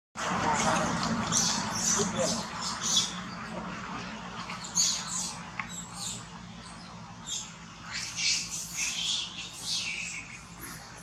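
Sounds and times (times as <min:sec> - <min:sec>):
monkeys squeaky calls: 0:04.6 - 0:11.0.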